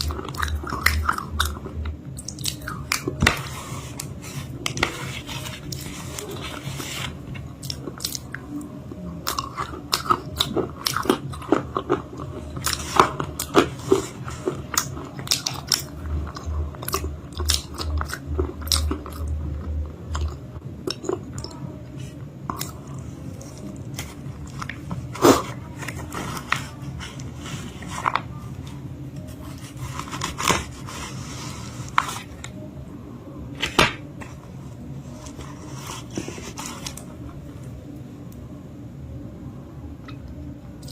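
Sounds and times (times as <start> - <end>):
crunchy biting and chewing: 9.2 - 19.4.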